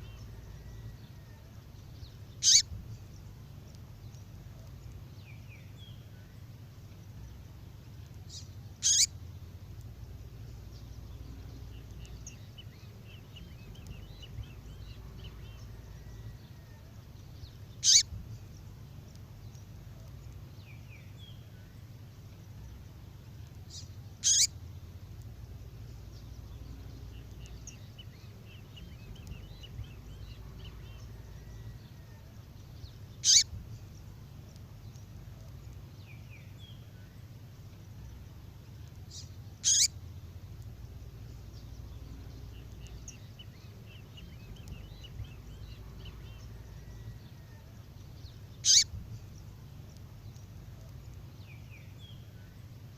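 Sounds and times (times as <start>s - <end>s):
faint bird twittering: 0.0s - 52.9s
steady low hum: 0.0s - 52.9s
songbird sharp calls: 2.4s - 2.8s, 8.3s - 9.2s, 17.7s - 18.2s, 23.7s - 24.6s, 33.2s - 33.6s, 39.1s - 40.0s, 48.6s - 49.0s.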